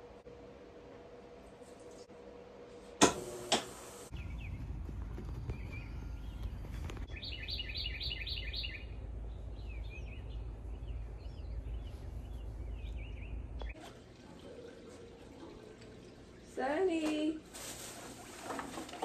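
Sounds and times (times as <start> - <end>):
low wind rumble on microphone: 4.1 - 13.7
birds singing: 4.1 - 13.8.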